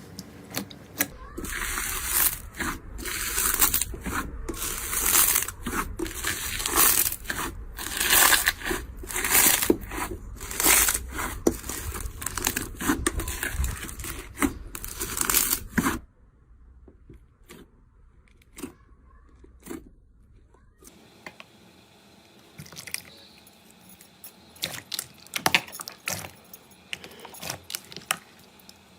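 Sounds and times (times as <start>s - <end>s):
crunchy snaps and crunches: 0.2s - 16.0s, 24.6s - 28.8s.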